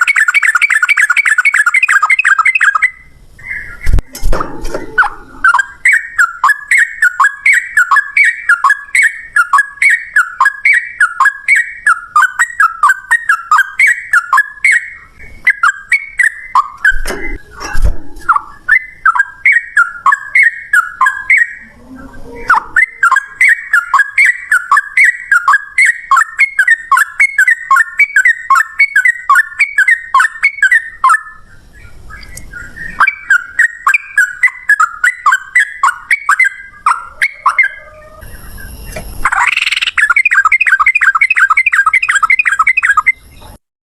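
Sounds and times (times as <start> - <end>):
bird singing rolling chatter: 0.0 - 43.6
low thud: 3.8 - 5.1.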